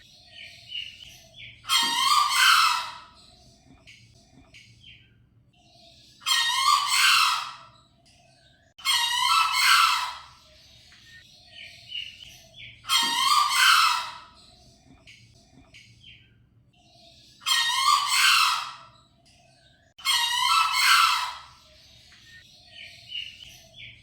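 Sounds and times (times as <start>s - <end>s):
faint small bird chirps: 0.0s - 24.0s
junglefowl crowing: 1.7s - 3.0s, 6.3s - 7.6s, 8.8s - 10.3s, 12.9s - 14.3s, 17.5s - 18.8s, 20.0s - 21.5s.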